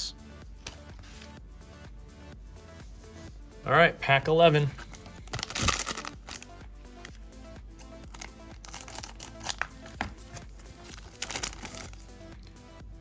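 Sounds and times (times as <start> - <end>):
foil pack crinkling: 4.6 - 6.5, 8.0 - 12.0.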